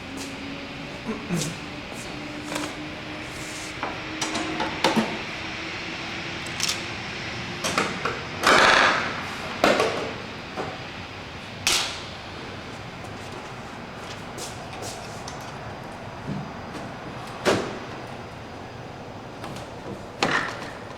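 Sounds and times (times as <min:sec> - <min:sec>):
loud noisy rush: 0:00.0 - 0:16.3.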